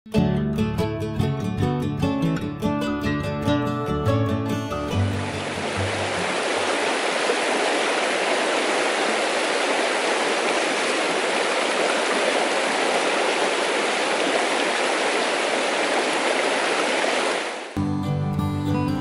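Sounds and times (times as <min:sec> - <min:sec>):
stream rushing over rocks: 0:05.0 - 0:17.8.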